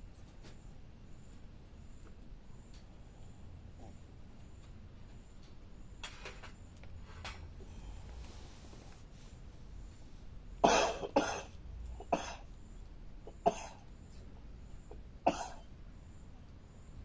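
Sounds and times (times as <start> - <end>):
person coughing: 10.6 - 12.4, 13.3 - 13.8, 15.3 - 15.7.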